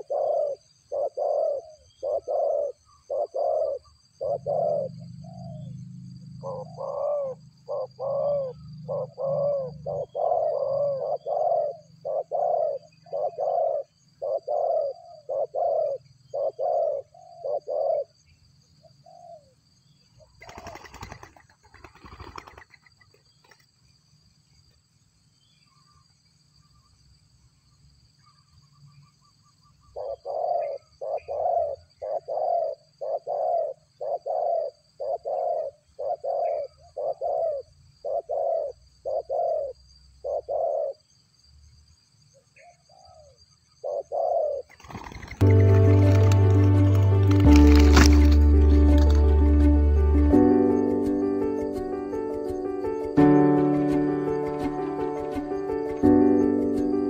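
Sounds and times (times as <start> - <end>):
dove-like cooing: 0.0 - 5.8, 6.4 - 18.2, 20.4 - 21.3, 30.0 - 41.0, 42.9 - 46.1.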